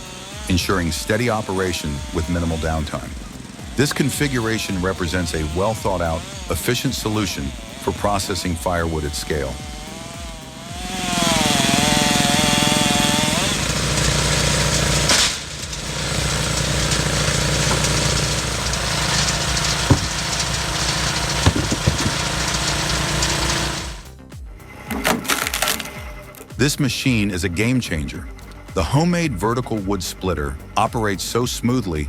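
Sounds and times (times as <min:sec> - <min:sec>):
log splitter machinery running: 0:00.0 - 0:31.9
sharp knocks: 0:14.8 - 0:23.4.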